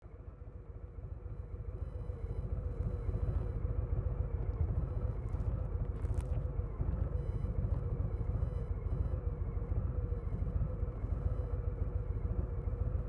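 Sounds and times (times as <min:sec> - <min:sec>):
motorcycle engine running at low revs: 0:00.3 - 0:13.0.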